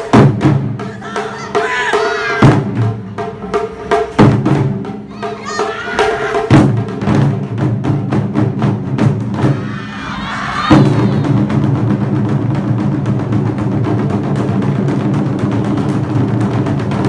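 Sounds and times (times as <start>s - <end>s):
rapid drum strikes: 0.0s - 17.0s
person singing or calling: 0.8s - 2.4s, 5.1s - 6.5s.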